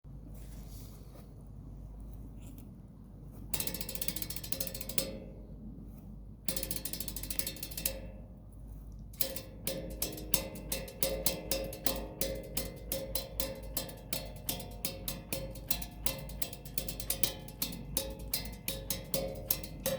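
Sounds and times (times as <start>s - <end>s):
rapid rattling clicks: 3.6s - 5.3s, 6.5s - 8.2s, 9.2s - 19.9s.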